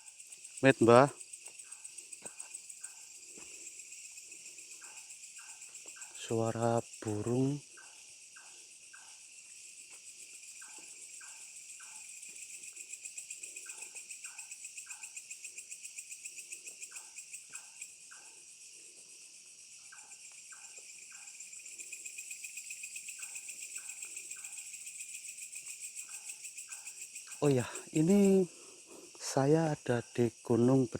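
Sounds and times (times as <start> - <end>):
crickets chirping: 0.0 - 30.9
night bird calling: 26.0 - 30.8.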